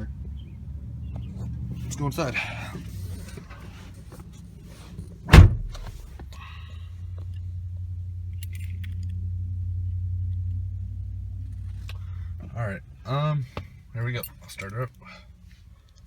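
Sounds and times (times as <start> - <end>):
truck door slamming: 5.3 - 6.1
steady low hum: 5.3 - 6.2.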